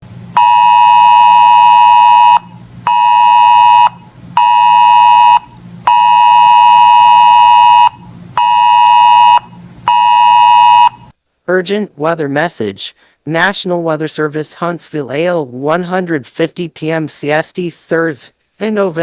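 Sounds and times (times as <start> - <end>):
loud buzzy alert beeps: 0.4 - 11.1.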